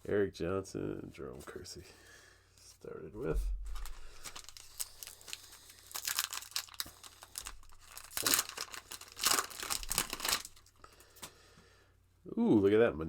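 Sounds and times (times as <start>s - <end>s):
wrapper tearing and crinkling: 3.7s - 11.3s.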